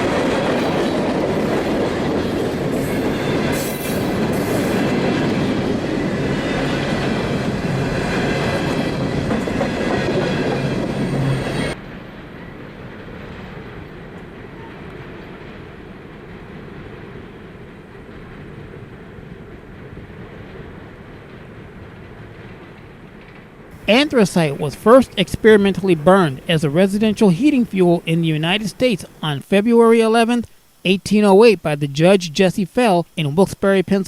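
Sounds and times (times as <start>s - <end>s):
train cars rumbling past: 0.0s - 29.2s
high wheel squeals: 6.2s - 11.8s.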